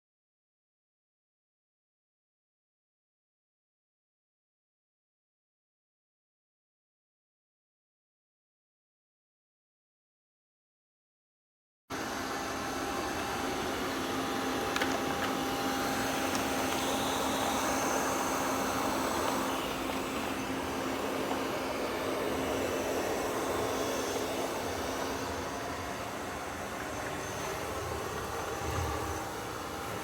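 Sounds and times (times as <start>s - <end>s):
robot vacuum whirring: 12.0s - 30.0s.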